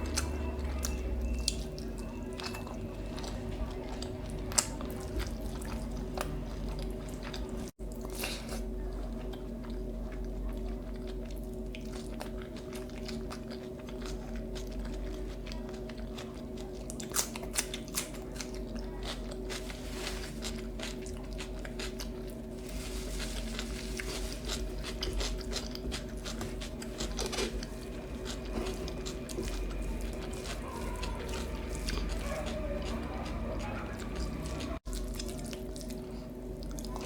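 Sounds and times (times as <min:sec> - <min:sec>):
low background hum: 0:00.0 - 0:37.0
person chewing and crunching: 0:00.0 - 0:37.0.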